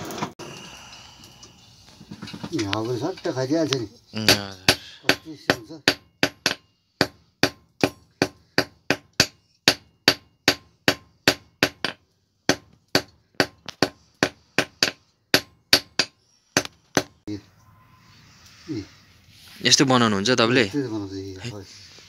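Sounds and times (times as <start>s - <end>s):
hammer striking iron on anvil: 4.3s - 17.1s.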